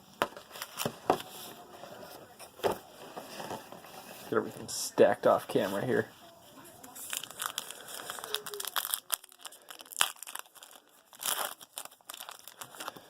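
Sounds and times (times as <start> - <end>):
foil wrapper rustling and tearing: 6.8 - 13.0.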